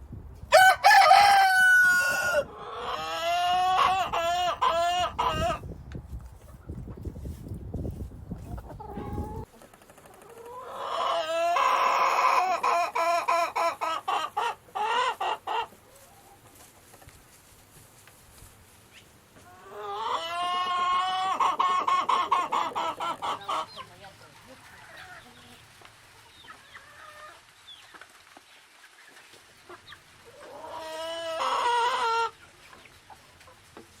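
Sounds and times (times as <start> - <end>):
chicken calling: 0.5 - 5.6, 10.1 - 16.4, 19.4 - 24.0, 29.7 - 33.2.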